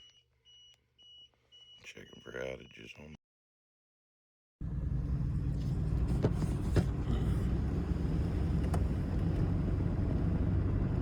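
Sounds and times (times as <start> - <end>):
car road and engine rumble: 4.6 - 11.0.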